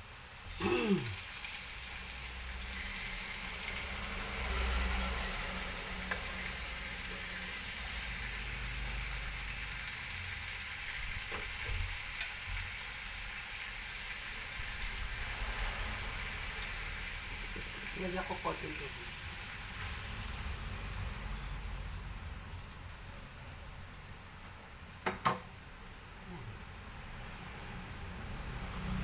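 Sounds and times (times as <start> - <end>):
food sizzling in a pan: 0.0 - 29.0.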